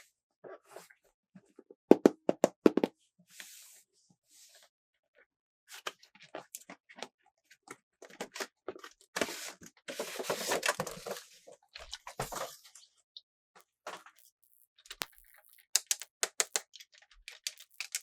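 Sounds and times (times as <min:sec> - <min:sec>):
plastic packaging crinkling: 0:13.9 - 0:18.0
plastic packaging clicks and taps: 0:15.0 - 0:16.6.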